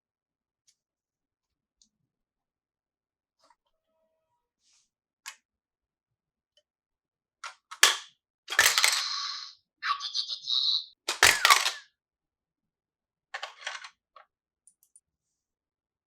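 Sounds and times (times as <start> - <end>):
plastic toy pieces clicking: 7.8 - 10.4, 11.1 - 11.8.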